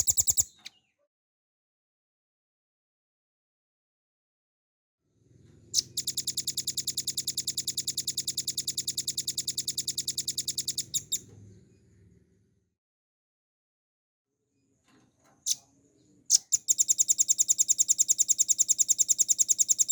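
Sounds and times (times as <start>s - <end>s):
bird singing fast trill: 0.0s - 0.8s, 5.8s - 11.2s, 16.3s - 19.9s.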